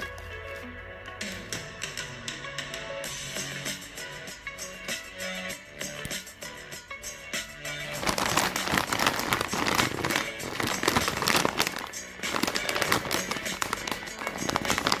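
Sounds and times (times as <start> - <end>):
background music: 0.0 - 15.0
plastic wrapper crinkling: 7.9 - 15.0.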